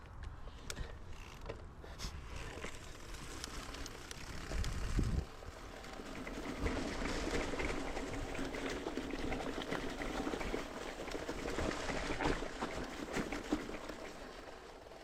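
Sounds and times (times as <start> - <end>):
bike rattles and clicks: 0.0 - 15.0
bike tyres crunching over dirt: 0.0 - 15.0.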